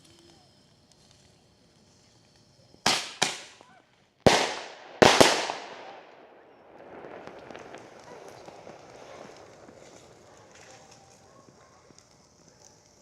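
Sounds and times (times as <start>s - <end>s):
firecracker bangs echoing: 2.8s - 12.4s.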